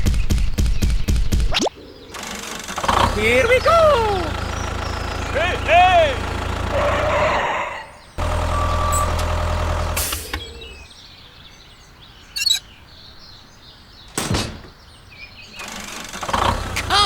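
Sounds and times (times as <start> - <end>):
toy tractor motor humming: 2.1 - 7.2, 8.2 - 10.8, 15.6 - 17.0.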